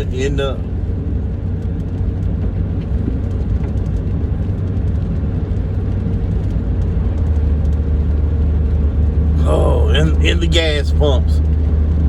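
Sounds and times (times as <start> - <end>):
vehicle cabin road noise: 0.0 - 12.0
faint light ticks: 1.6 - 8.0.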